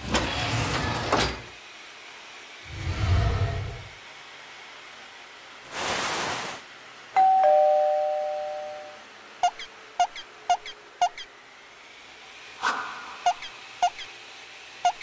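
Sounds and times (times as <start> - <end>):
two-note chime: 7.2 - 9.0
synthetic whoosh: 12.6 - 13.3.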